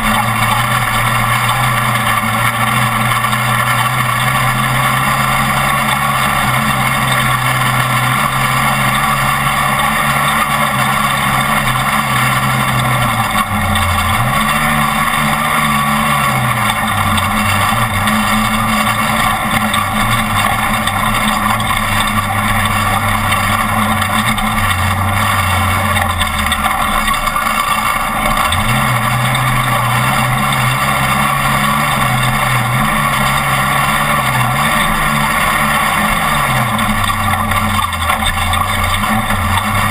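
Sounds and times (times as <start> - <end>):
road and wind noise: 0.0 - 39.9
truck engine running hard: 0.0 - 39.9.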